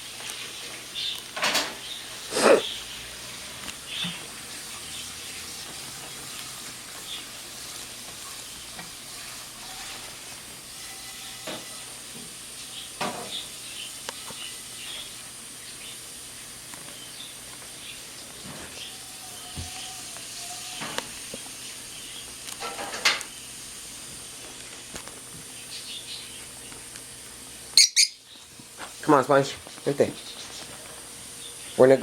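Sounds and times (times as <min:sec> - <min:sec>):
lovebird chirps: 0:27.8 - 0:28.2.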